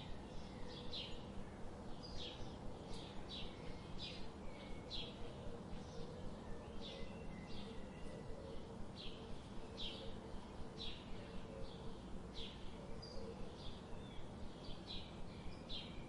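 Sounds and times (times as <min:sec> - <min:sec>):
faint steady hum: 0:00.0 - 0:16.0
bird chirping: 0:02.0 - 0:10.2.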